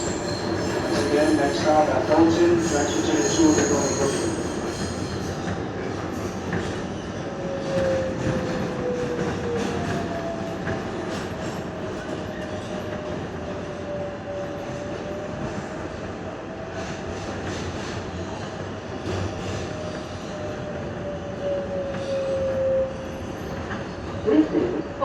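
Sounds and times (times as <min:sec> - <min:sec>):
subway wheels rumbling on rail: 0:00.0 - 0:25.0.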